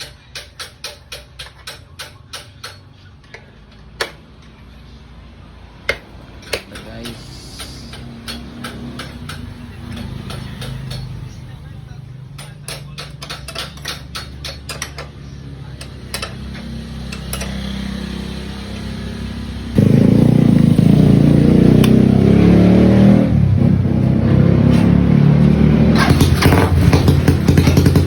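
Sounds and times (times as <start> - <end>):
engine ticking: 5.8 - 22.4, 25.4 - 28.0
motorcycle engine revving: 14.9 - 28.0.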